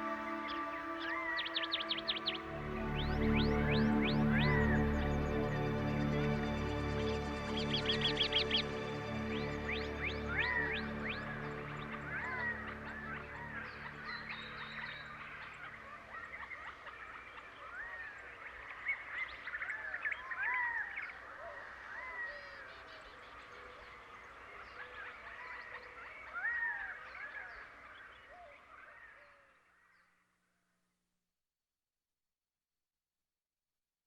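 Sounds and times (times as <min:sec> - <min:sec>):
birds chirping and whistling: 0:00.0 - 0:02.4
low held music notes: 0:00.0 - 0:14.6.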